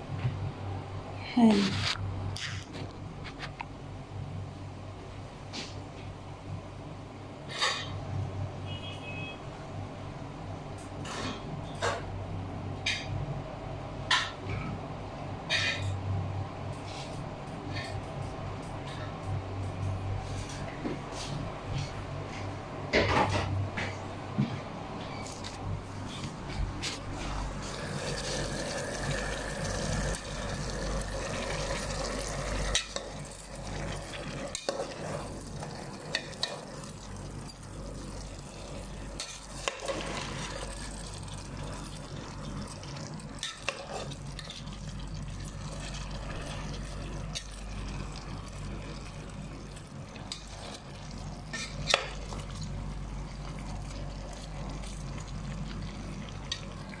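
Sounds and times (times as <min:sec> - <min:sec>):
food sizzling in a pan: 0:27.6 - 0:56.9.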